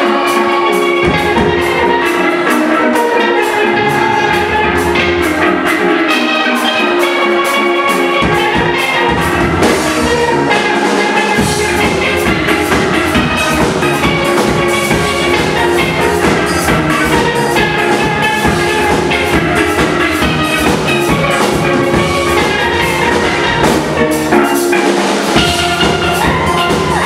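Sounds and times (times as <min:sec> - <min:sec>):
drums: 0:00.0 - 0:27.0
steel pans playing melody: 0:00.0 - 0:27.0
low bass notes: 0:03.4 - 0:06.2, 0:11.4 - 0:24.3.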